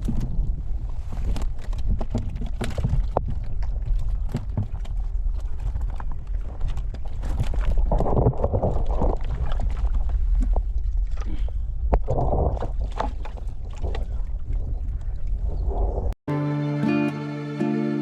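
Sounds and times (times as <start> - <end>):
wind rumble on microphone: 0.0 - 16.2
knocks in a boat: 4.2 - 5.0.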